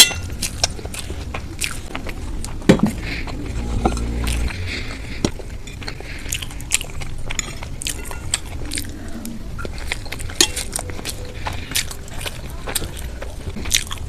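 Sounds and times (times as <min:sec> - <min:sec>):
biting and chewing: 0:00.0 - 0:14.0
mouth clicks and smacks: 0:00.4 - 0:03.5.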